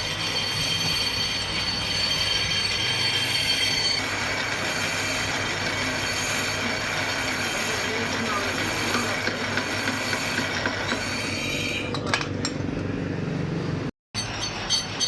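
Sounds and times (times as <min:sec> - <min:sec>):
brake lathe running: 0:00.0 - 0:11.9.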